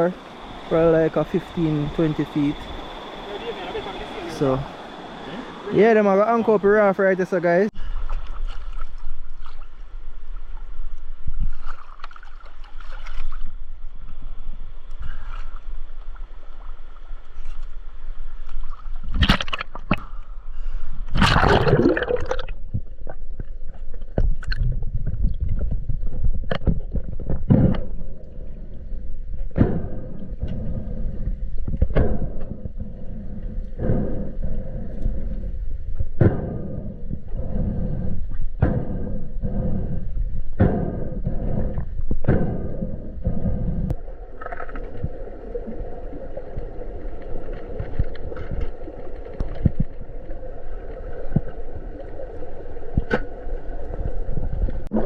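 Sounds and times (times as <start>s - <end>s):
water splashes: 0.0s - 14.1s, 21.1s - 25.6s, 44.0s - 55.0s
river water sloshing and gurgling: 7.5s - 14.1s, 21.1s - 24.6s
short sharp gurgles: 21.2s - 22.6s.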